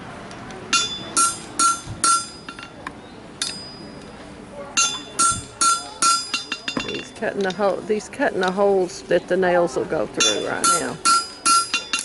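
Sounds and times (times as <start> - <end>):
hammer striking steel on anvil: 0.7 - 2.8, 3.4 - 3.8, 4.8 - 7.2, 10.2 - 12.0.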